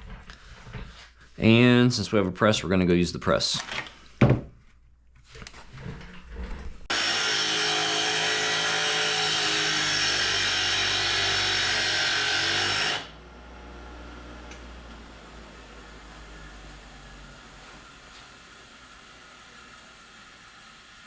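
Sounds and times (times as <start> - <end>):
motor-driven machine running: 6.9 - 21.0.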